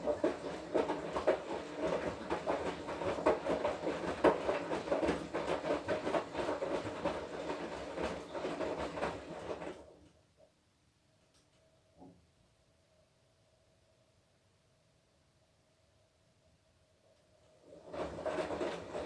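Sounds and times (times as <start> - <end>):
laundry and water tumbling: 0.0 - 10.0, 17.7 - 19.0
washing machine motor hum: 0.0 - 10.1, 17.5 - 19.0.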